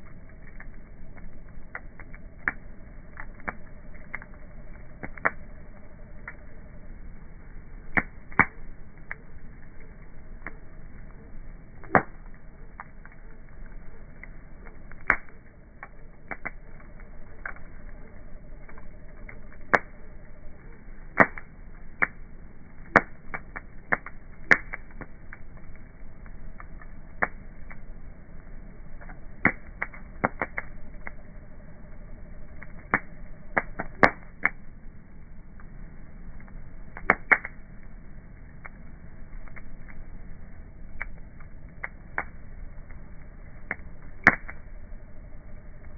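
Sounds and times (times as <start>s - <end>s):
sharp pops and snaps: 0.0s - 6.4s, 7.9s - 20.0s, 21.1s - 22.2s, 22.8s - 25.7s, 26.6s - 27.8s, 29.0s - 31.2s, 32.6s - 34.6s, 36.9s - 37.6s, 40.9s - 42.4s, 43.6s - 44.6s
bonfire crackling: 0.0s - 45.9s
low steady rush: 0.0s - 45.9s.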